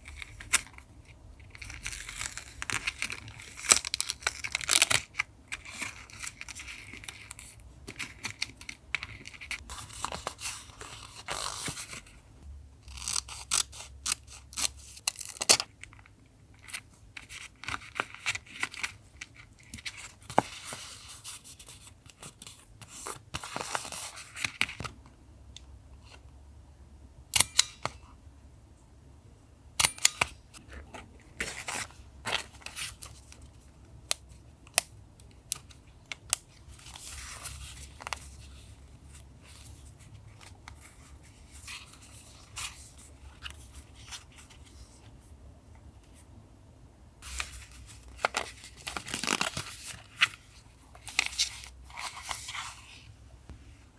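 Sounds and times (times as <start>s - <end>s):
paper rustling and tearing: 47.2s - 53.0s.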